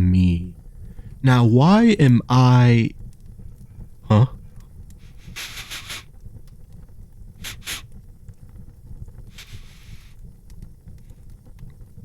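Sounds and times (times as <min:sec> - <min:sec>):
fireplace crackle: 0:00.0 - 0:12.0
man sniffing: 0:05.1 - 0:06.1, 0:07.4 - 0:07.9, 0:09.4 - 0:10.0.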